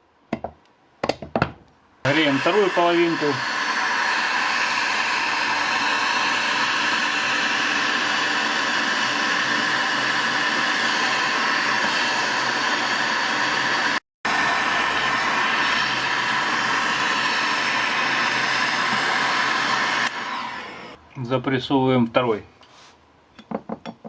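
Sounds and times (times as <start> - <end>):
heat gun blowing: 2.1 - 21.0.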